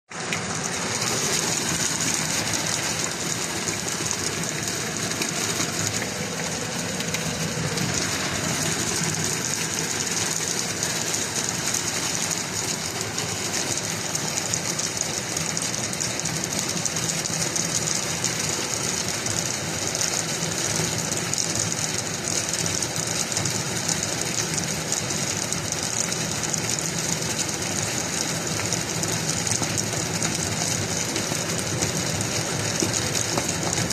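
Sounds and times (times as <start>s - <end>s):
heavy hail clattering: 0.2s - 19.4s, 21.2s - 33.9s.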